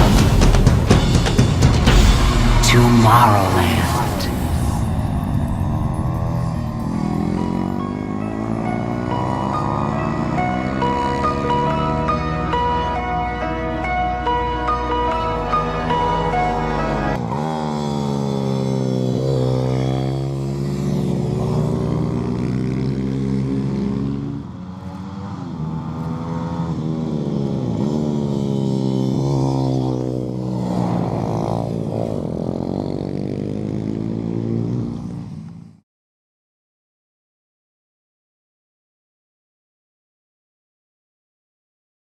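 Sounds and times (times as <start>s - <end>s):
small motorbike engines revving: 5.8s - 14.5s, 15.4s - 35.6s.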